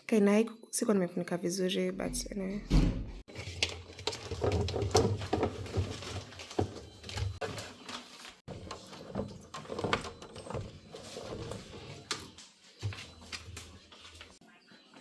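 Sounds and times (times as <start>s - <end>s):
packaging knocks and rustles: 3.3s - 13.6s.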